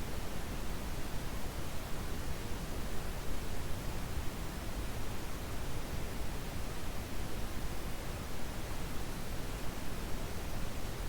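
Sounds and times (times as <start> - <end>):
brown noise hiss: 0.0 - 11.0.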